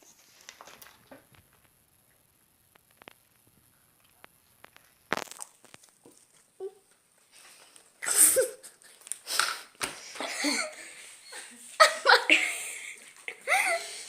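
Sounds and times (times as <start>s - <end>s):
voices laughing: 10.2s - 14.0s.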